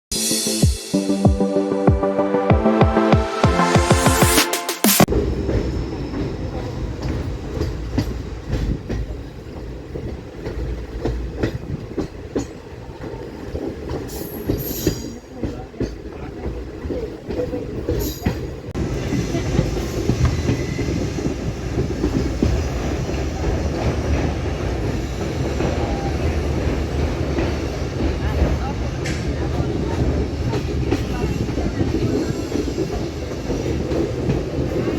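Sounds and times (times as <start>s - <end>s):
train rumble and clickety-clack: 5.1s - 34.9s
train wheel squeals: 13.4s - 15.4s, 17.3s - 26.6s, 29.9s - 34.9s.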